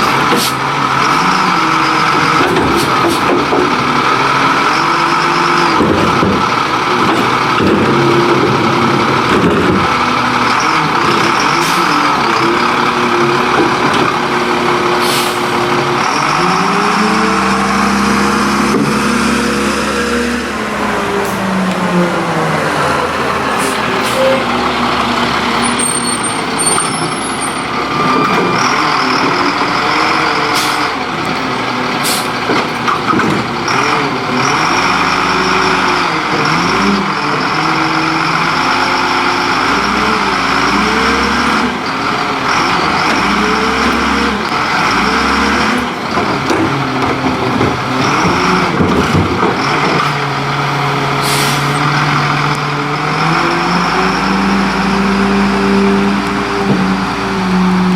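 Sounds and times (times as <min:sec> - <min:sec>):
garbage truck engine revving: 0:00.0 - 0:57.9
air brakes hissing: 0:15.0 - 0:15.6, 0:23.5 - 0:24.6, 0:32.0 - 0:32.4, 0:51.2 - 0:51.8.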